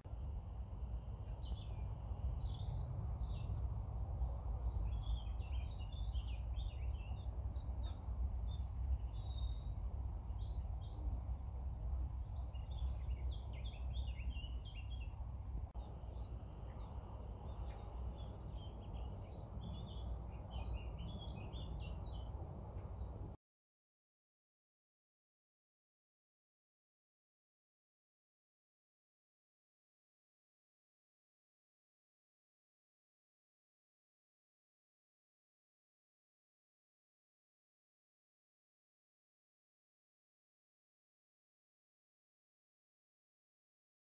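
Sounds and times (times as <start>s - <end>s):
low background rumble: 0.1s - 23.4s
small birds chirping: 0.1s - 23.4s.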